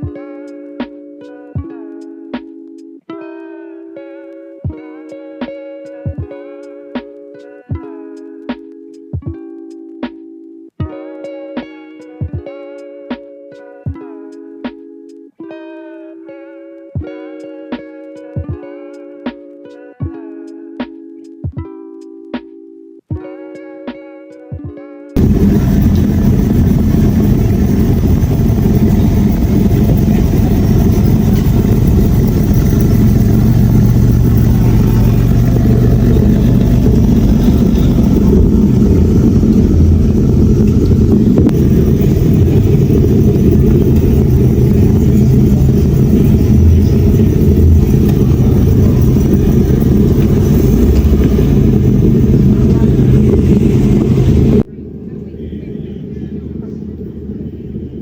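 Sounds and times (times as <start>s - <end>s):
car engine running: 25.2s - 58.0s.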